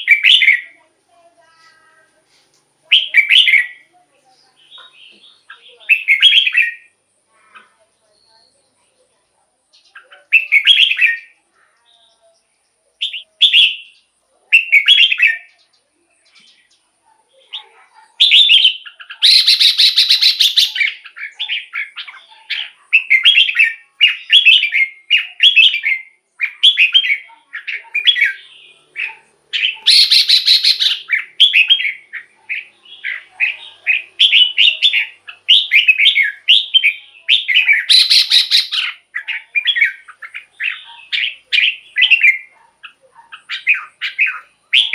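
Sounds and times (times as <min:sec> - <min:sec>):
bird whistled song: 0:00.0 - 0:00.7, 0:02.9 - 0:03.8, 0:04.7 - 0:06.9, 0:09.9 - 0:11.4, 0:13.0 - 0:15.5, 0:18.2 - 0:42.5, 0:43.3 - 0:44.9
bird harsh rasping calls: 0:00.0 - 0:00.8, 0:02.9 - 0:03.8, 0:04.6 - 0:07.8, 0:17.6 - 0:44.9.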